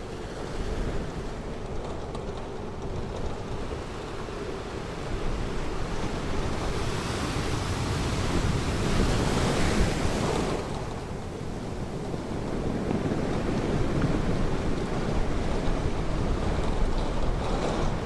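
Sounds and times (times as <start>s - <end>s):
ocean surf washing on beach: 3.6s - 18.0s.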